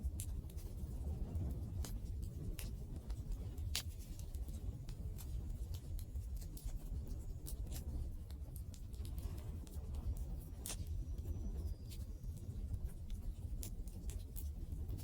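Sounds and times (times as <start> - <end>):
low rumble of burning: 0.0 - 15.0
faint thin whistle: 10.6 - 12.8.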